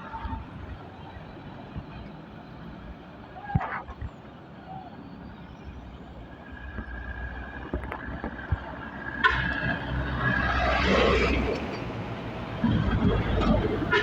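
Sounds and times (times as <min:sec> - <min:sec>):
traffic rumbling past: 0:06.2 - 0:14.0.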